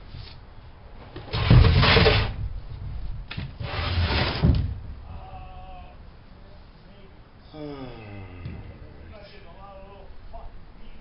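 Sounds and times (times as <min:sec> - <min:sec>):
rasping scrapes: 0:03.6 - 0:04.4.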